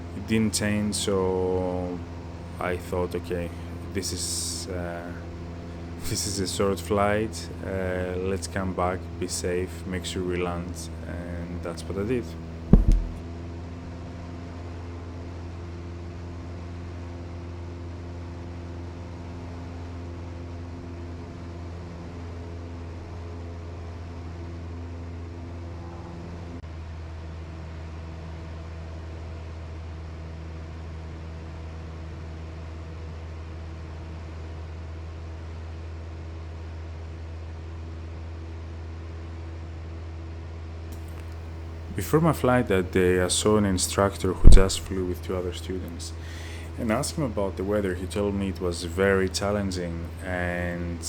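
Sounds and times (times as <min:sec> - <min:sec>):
airplane engine and propeller droning: 0:00.0 - 0:12.4.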